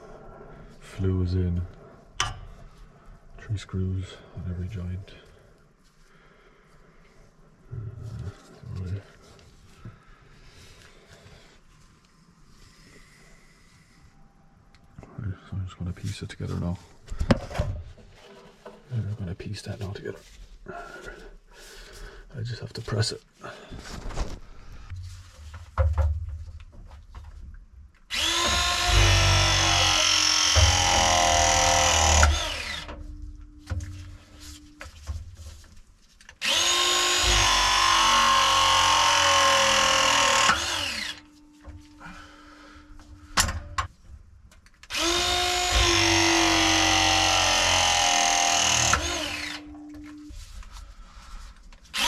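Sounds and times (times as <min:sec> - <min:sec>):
press tool motor crimping: 0:28.1 - 0:32.9, 0:36.4 - 0:41.2, 0:44.9 - 0:49.7.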